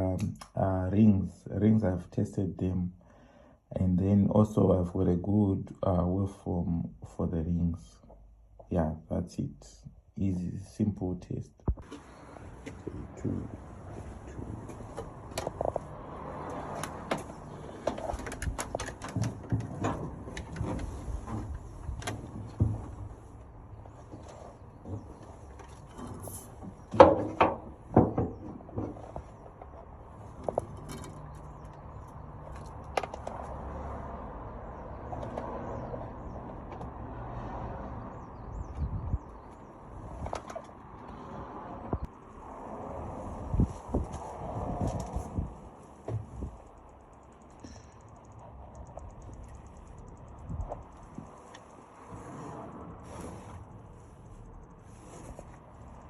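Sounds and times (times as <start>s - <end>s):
sharp clicks and light knocks: 14.7s - 23.0s, 30.4s - 33.6s, 46.1s - 51.7s
birds chirping faintly: 37.9s - 41.2s.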